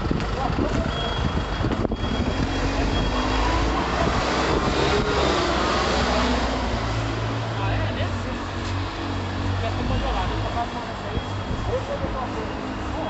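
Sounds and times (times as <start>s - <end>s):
passing vehicle traffic: 0.0s - 13.0s
reversing beeper: 0.8s - 4.0s, 9.8s - 13.0s.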